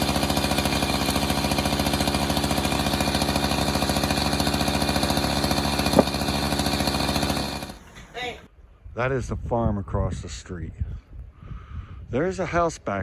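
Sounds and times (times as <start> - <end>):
small gasoline engine puttering: 0.0 - 8.1
sharp knock: 5.9 - 6.3.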